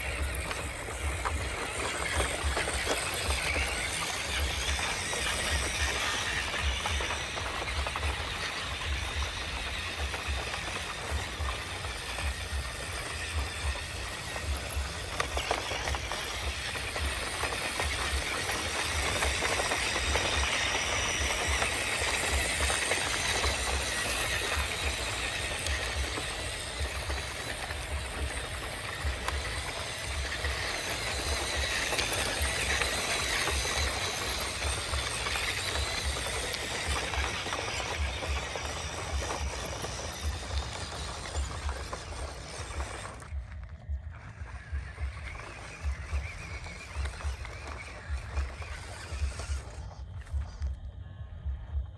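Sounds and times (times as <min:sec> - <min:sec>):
low rumble: 0:41.4 - 0:51.9.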